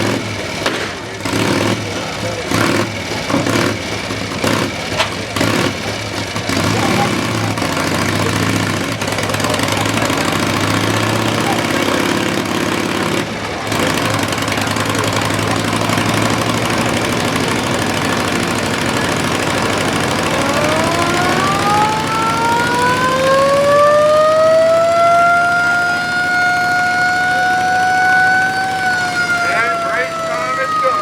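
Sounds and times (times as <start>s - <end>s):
motorcycle engines knocking: 0.0s - 31.0s
siren wailing: 14.8s - 31.0s.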